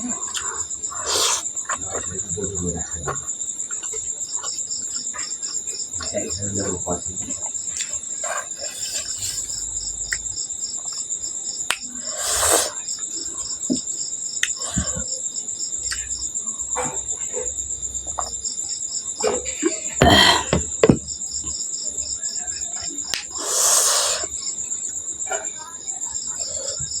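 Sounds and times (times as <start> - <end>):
person eating: 0.0 - 10.3, 11.9 - 12.8, 20.0 - 20.7
crickets chirping: 0.0 - 27.0
noodle slurp: 0.4 - 2.0, 8.2 - 9.7, 12.1 - 12.8, 23.4 - 24.3.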